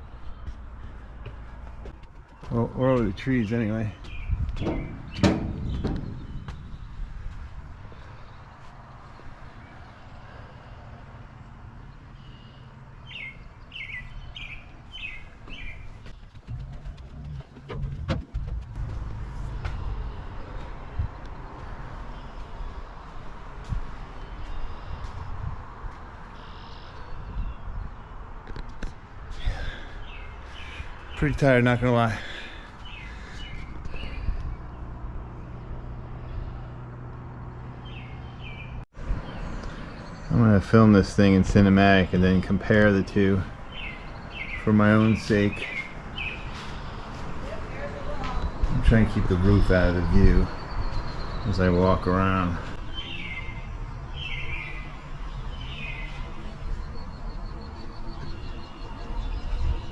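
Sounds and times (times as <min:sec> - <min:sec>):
steady low rumble: 0:02.6 - 0:09.3, 0:15.3 - 0:24.4, 0:38.8 - 0:59.9
songbird calling: 0:03.3 - 0:07.1, 0:12.1 - 0:16.4, 0:26.3 - 0:27.8, 0:37.8 - 0:59.9
bird chirps: 0:12.1 - 0:16.5, 0:37.8 - 0:59.9
low rumble: 0:16.3 - 0:23.9, 0:52.5 - 0:59.9.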